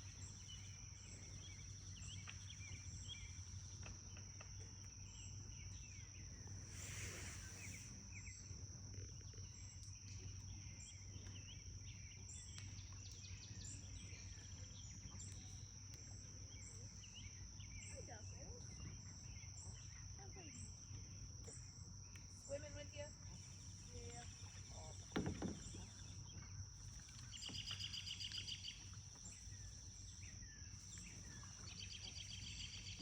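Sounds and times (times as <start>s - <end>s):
bird chirps: 27.2s - 33.0s.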